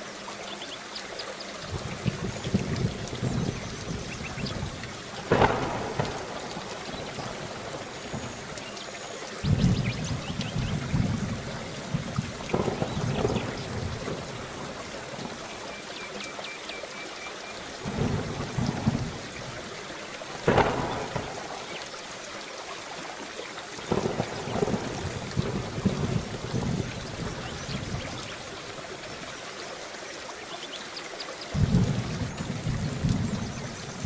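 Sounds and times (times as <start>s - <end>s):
steady rain: 0.0s - 34.0s
thunder rumbling: 1.7s - 8.7s, 9.4s - 15.6s, 17.8s - 22.0s, 23.9s - 29.2s, 31.5s - 34.0s.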